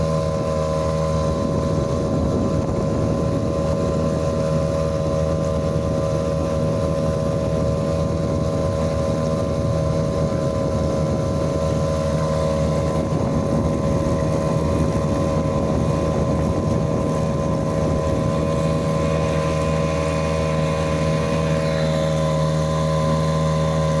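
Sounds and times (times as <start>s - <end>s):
outboard motor running: 0.0s - 24.0s
wind on microphone: 0.0s - 24.0s.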